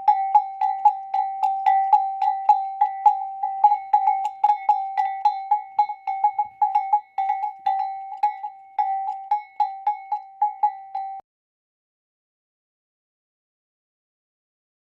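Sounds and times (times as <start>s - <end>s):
bell struck repeatedly: 0.0s - 11.2s.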